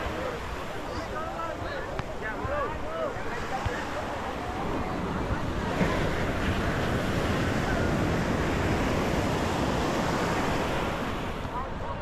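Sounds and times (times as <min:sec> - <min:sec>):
waves breaking on a beach: 0:00.0 - 0:12.0
wind buffeting microphone: 0:03.5 - 0:12.0.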